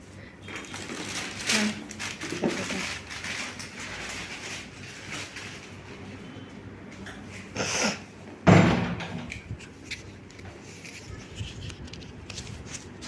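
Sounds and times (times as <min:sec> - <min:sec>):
door shutting thud: 0:08.4 - 0:09.3.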